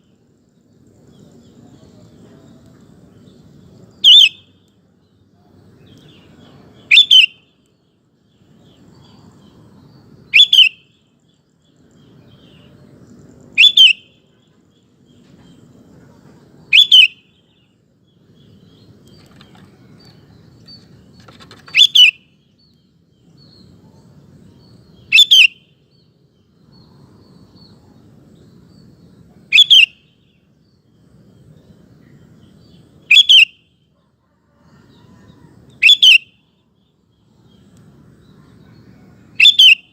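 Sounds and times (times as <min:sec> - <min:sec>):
bulbul two-note calls: 0:04.0 - 0:04.4, 0:06.9 - 0:07.4
faint low rumble: 0:14.2 - 0:16.7, 0:25.8 - 0:29.5.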